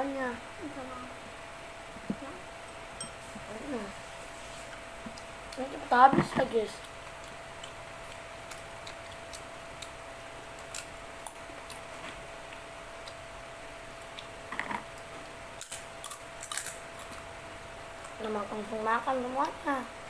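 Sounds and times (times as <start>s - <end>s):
faint hum: 0.0s - 20.0s
clicks of people eating: 6.3s - 10.0s.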